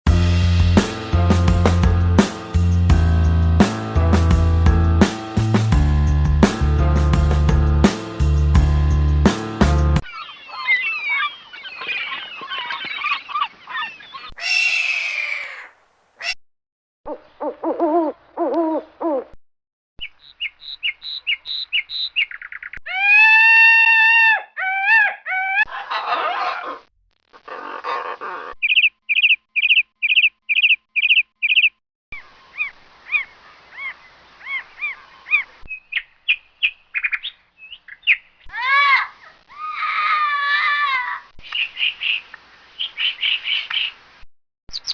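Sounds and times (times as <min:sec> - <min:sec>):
twittering birdsong: 0:10.0 - 0:16.3, 0:20.0 - 0:23.3, 0:27.8 - 0:44.0
evenly repeated animal calls: 0:10.0 - 0:16.4, 0:20.3 - 0:31.7
long held animal call: 0:10.0 - 0:16.4, 0:22.8 - 0:26.8
animal screech: 0:10.1 - 0:16.4, 0:22.9 - 0:26.8.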